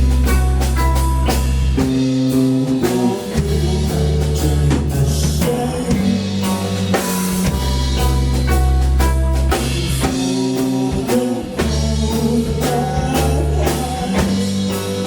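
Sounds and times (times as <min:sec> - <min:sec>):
deep bass line: 0:00.0 - 0:15.0
live rock band playing: 0:00.0 - 0:15.0.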